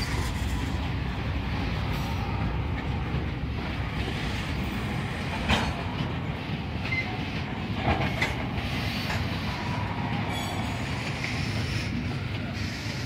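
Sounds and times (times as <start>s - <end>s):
train wheels rumbling on rails: 0.0s - 13.0s
wheels squealing: 10.2s - 12.0s.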